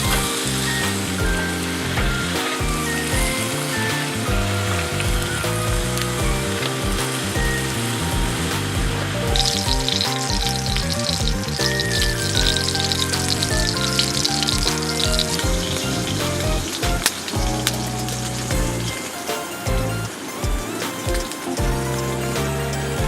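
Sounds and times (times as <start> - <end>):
background music: 0.0 - 23.0.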